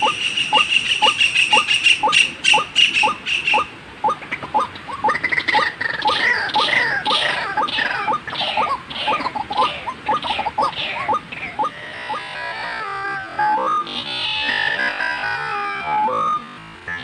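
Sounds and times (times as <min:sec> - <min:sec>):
short rising bird notes: 0:00.0 - 0:12.2
falling higher bird calls: 0:00.0 - 0:17.0.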